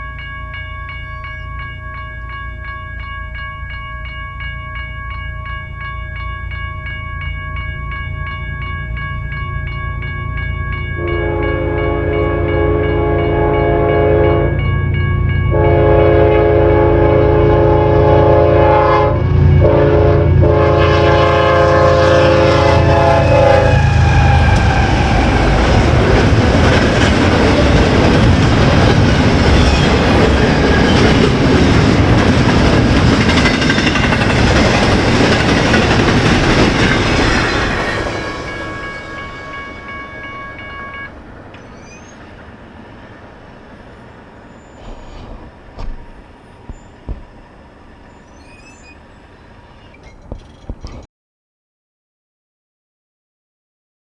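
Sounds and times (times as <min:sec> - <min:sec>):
locomotive air horn: 0:11.0 - 0:14.6, 0:15.5 - 0:27.9
diesel engines rumbling: 0:21.9 - 0:51.0
train wheels clattering on rails: 0:22.4 - 0:51.1.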